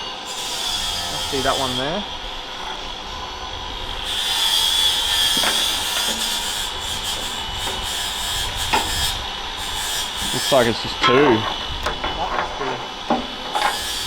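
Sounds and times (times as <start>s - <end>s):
workshop machine hiss: 3.9s - 14.0s.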